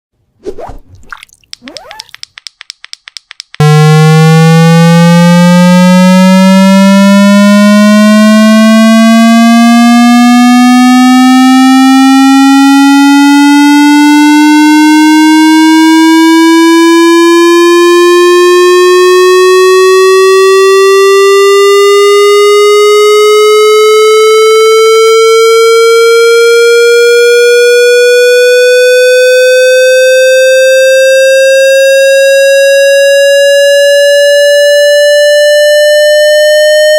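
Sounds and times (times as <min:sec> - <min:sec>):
rapid clicks: 0:01.5 - 0:03.6
rising buzzy electronic tone: 0:03.6 - 0:20.4.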